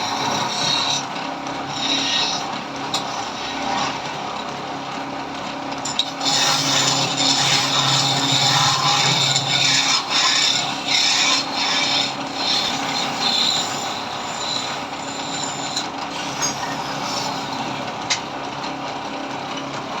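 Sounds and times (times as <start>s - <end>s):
turning tool scraping wood: 0.0s - 4.6s, 5.8s - 18.3s
lathe motor hum: 0.0s - 20.0s.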